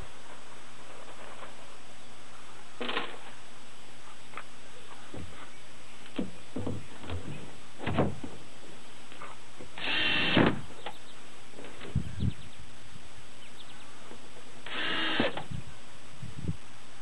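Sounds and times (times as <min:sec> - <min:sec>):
knocks of wooden panels: 0:06.1 - 0:08.4.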